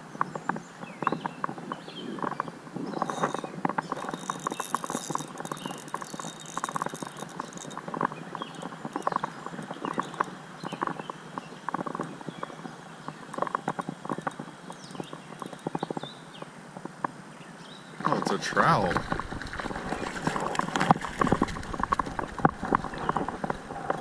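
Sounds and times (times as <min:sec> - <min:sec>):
stones knocking underfoot: 0:18.0 - 0:24.0.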